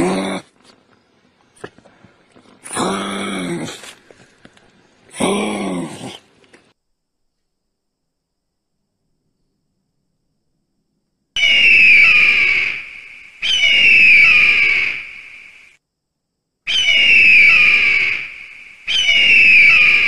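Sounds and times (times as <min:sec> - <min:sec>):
eagle screaming calls: 0:11.4 - 0:15.7, 0:16.7 - 0:20.0.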